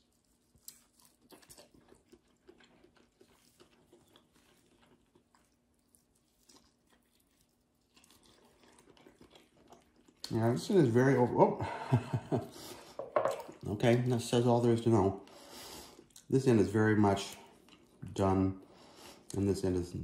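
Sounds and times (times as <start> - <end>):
small crunches: 0.0 - 10.5
person chewing: 0.0 - 10.6, 12.4 - 14.2, 15.2 - 16.3, 17.2 - 19.4.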